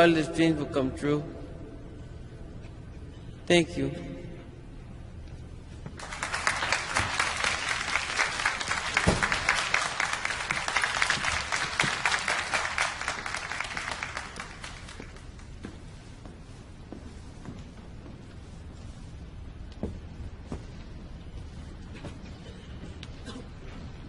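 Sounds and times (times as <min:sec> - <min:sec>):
audience applauding: 0:06.0 - 0:15.4.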